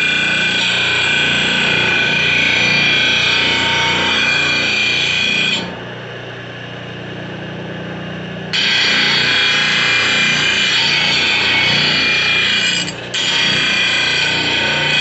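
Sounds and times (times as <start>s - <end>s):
drill bit grinding into material: 8.6s - 15.0s.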